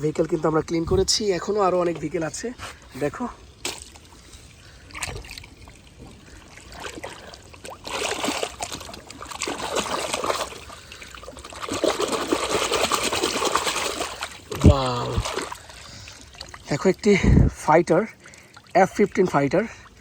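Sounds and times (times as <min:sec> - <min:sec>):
water trickling and splashing: 0:00.0 - 0:20.0.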